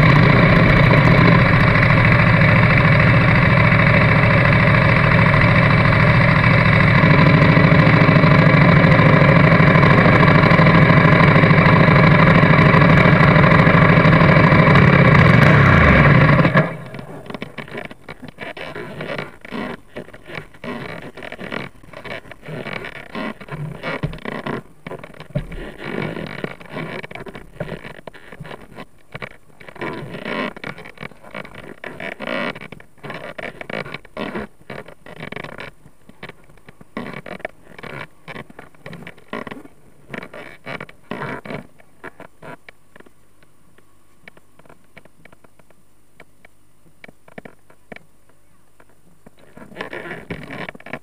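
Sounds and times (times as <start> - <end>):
motorcycle engine running: 0.0 - 35.7.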